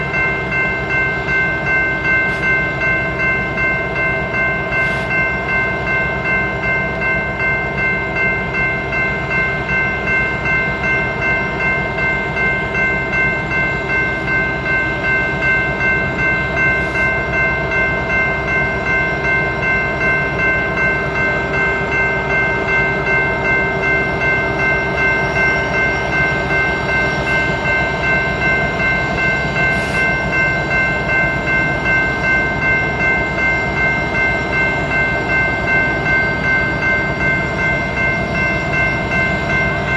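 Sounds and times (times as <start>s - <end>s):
railroad crossing bell ringing: 0.0s - 39.9s
train rumbling: 0.0s - 39.9s.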